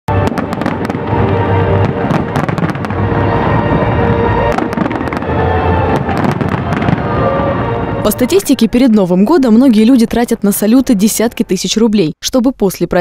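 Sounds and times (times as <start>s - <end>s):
fireworks bangs and crackling: 0.1s - 7.6s
music playing: 0.1s - 11.9s.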